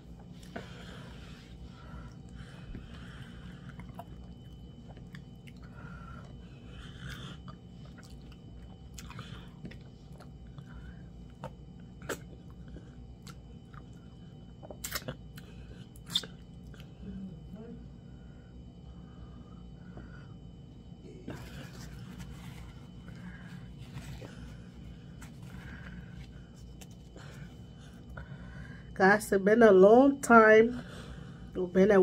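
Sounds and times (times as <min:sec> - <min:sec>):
chewing and mouth sounds: 0:02.0 - 0:17.0.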